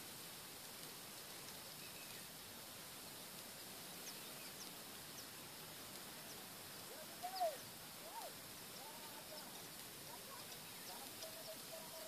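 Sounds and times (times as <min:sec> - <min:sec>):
faint steady hiss: 0:00.0 - 0:12.0
lower rising bird calls: 0:06.2 - 0:12.0.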